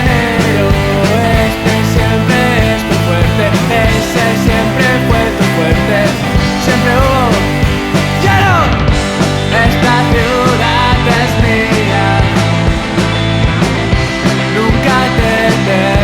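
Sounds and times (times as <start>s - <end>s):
bass guitar: 0.0s - 16.0s
drums steady beat: 0.0s - 16.0s
electric guitars: 0.0s - 16.0s.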